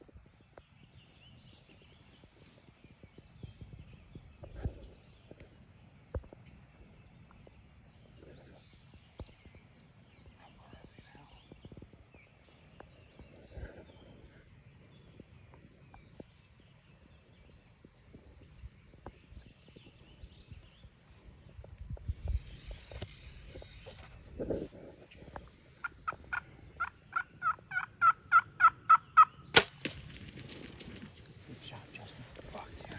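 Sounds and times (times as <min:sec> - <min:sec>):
turkey yelping: 0:26.0 - 0:29.4
sudden sharp crack: 0:29.5 - 0:30.9.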